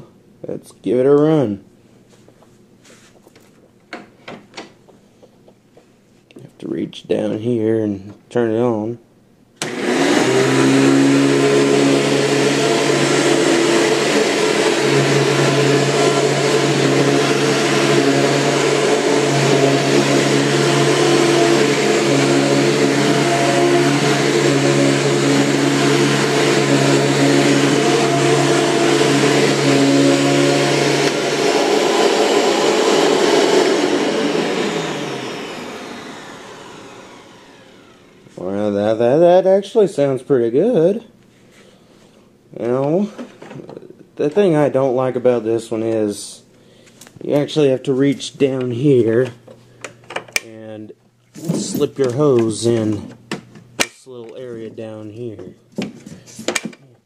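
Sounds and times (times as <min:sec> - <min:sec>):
vacuum motor winding down: 0:09.6 - 0:38.5
vacuum cleaner running: 0:09.6 - 0:39.2, 0:51.4 - 0:53.9.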